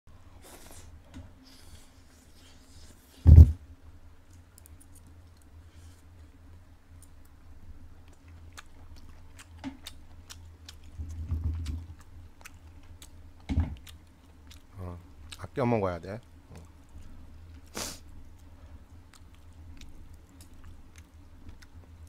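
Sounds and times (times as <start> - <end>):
low steady hum: 0.1 - 22.0
loud thump: 3.2 - 3.6
person chewing: 8.0 - 15.5, 16.2 - 22.0.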